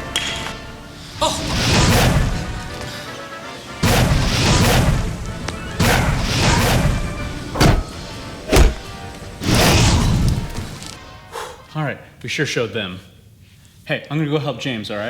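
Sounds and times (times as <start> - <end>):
background music: 0.0 - 11.7
booming crash sound effects: 1.4 - 2.8, 3.8 - 10.8.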